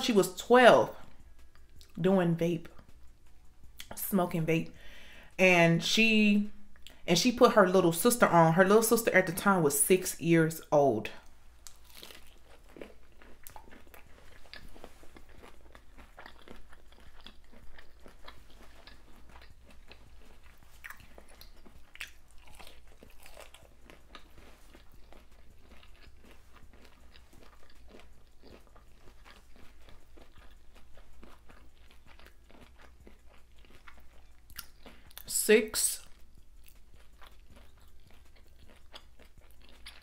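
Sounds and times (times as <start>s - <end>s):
wet mouth clicks: 0.9s - 2.0s, 2.6s - 4.0s, 11.6s - 35.3s
crisp chewing crunches: 11.6s - 35.3s, 36.0s - 40.0s.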